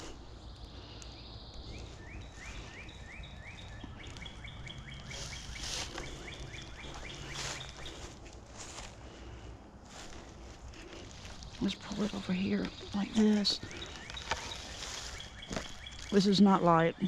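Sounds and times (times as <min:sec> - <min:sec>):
songbird rising chirps: 0:00.0 - 0:09.5, 0:10.1 - 0:17.0
scuffs and rustles: 0:03.5 - 0:16.2.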